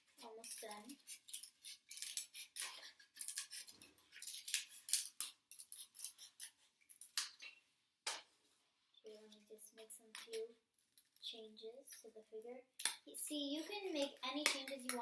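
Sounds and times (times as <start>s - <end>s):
scissors snipping foam: 0.2s - 7.4s.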